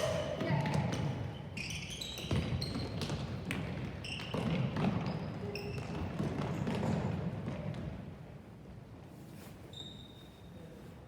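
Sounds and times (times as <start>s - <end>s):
sneakers squeaking on floor: 0.0s - 7.8s, 9.6s - 10.6s.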